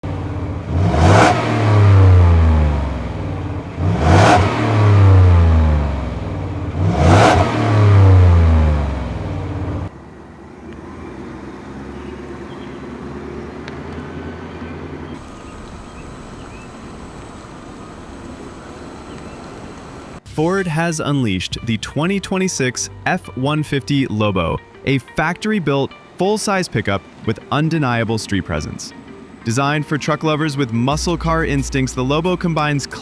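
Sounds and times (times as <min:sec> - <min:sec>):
engine revving: 0:00.0 - 0:09.9, 0:10.7 - 0:20.2, 0:30.9 - 0:33.0
low engine rumble: 0:00.0 - 0:20.2, 0:26.8 - 0:33.0.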